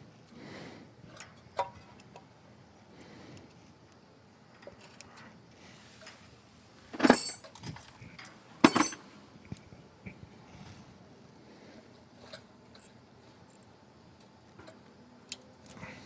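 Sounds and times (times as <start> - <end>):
small metal parts rattling: 6.9 - 9.0.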